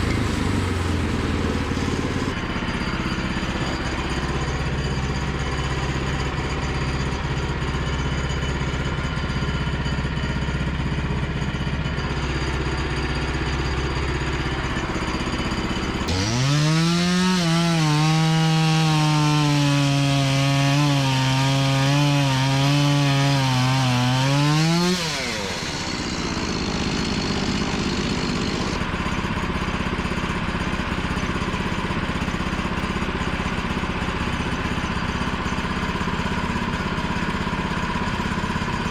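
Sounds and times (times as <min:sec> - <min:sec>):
band saw blade cutting: 0:00.0 - 0:02.4, 0:16.1 - 0:28.8
small gas engine: 0:00.0 - 0:38.9.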